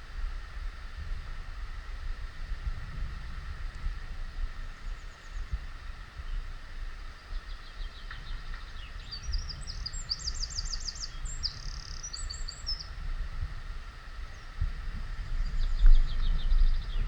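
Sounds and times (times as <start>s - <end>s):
low rumble on microphone: 0.0s - 17.0s
small songbird singing: 7.2s - 13.0s, 15.2s - 17.0s.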